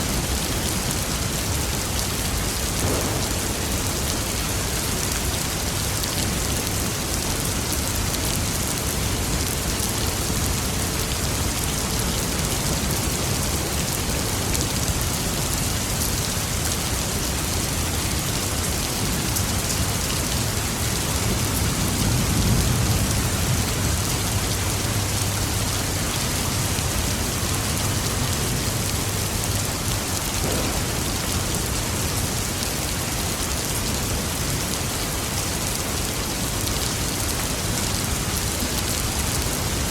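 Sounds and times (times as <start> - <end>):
steady rain hiss: 0.0 - 39.9
low rumble of thunder: 2.3 - 6.5, 20.6 - 32.6.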